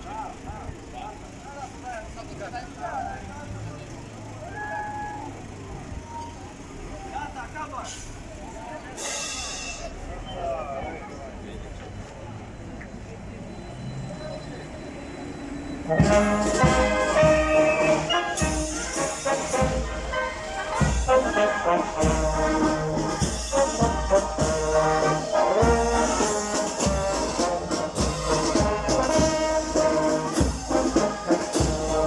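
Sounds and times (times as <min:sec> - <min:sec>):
brass band horns playing: 0:15.9 - 0:32.0
drums beating: 0:15.9 - 0:32.0.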